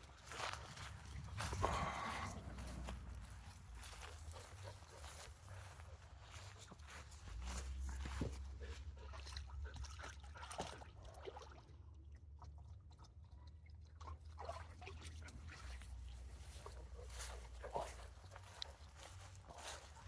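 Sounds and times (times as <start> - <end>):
footsteps crunching on dry ground: 0.0 - 8.9, 15.7 - 20.0.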